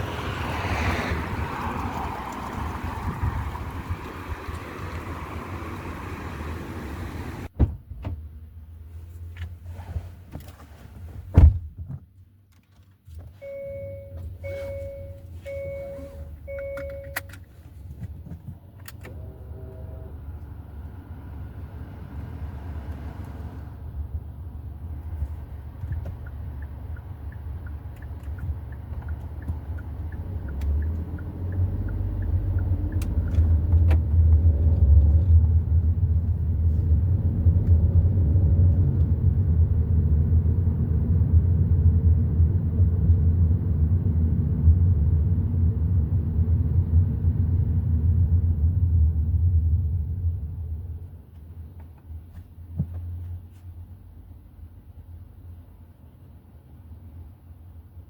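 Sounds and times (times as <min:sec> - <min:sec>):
car engine rumbling: 0:00.0 - 0:58.0
car door shutting: 0:07.1 - 0:08.2, 0:10.3 - 0:12.0
dashboard chime beeps: 0:13.4 - 0:17.3
turn signal ticking: 0:13.4 - 0:17.4, 0:25.2 - 0:35.0.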